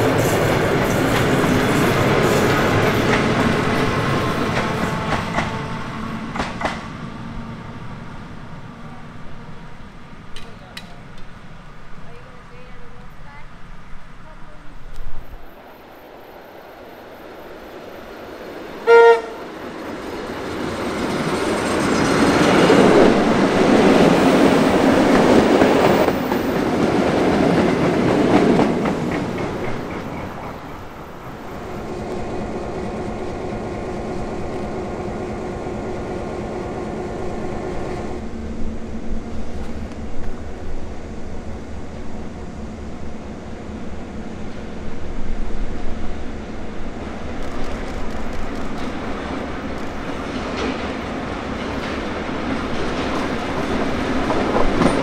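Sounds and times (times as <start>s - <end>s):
electric train running past: 0.0s - 55.0s
train running hum: 0.0s - 55.0s
train horn toot: 18.8s - 19.5s.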